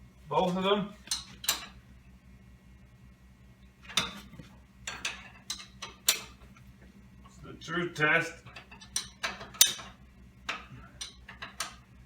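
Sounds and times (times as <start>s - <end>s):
metal tools clanking on metal: 3.9s - 6.4s, 8.4s - 11.8s.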